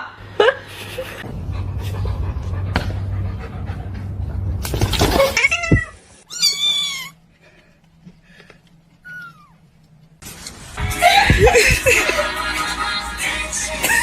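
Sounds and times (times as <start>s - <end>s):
low hum: 0.2s - 6.0s
cat meowing: 5.4s - 7.2s.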